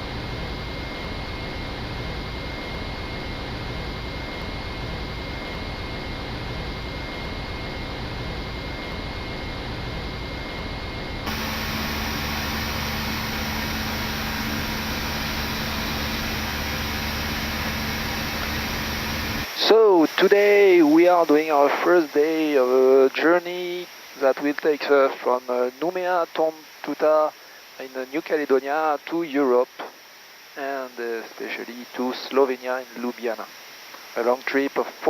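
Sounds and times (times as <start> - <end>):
steady low hum: 0.0 - 35.0
aircraft cockpit rushing noise: 11.3 - 19.7.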